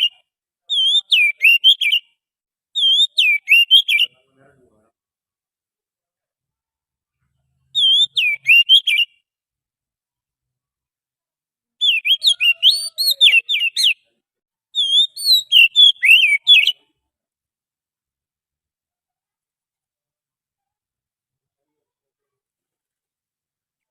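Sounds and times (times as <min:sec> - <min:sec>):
bird whistling song: 0:00.0 - 0:02.2, 0:02.8 - 0:04.1, 0:07.7 - 0:09.2, 0:11.8 - 0:14.0, 0:14.8 - 0:16.8.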